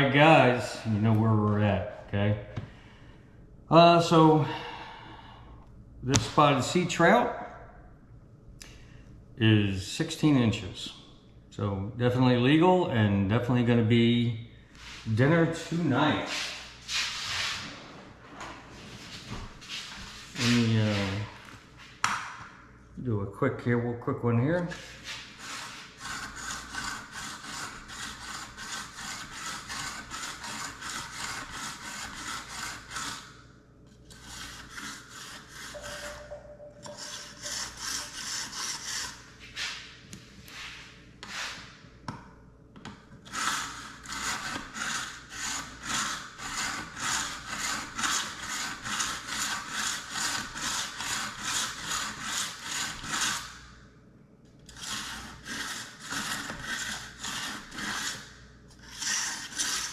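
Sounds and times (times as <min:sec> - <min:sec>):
knife scraping through sharpener: 0:34.1 - 0:39.2, 0:58.8 - 0:59.9.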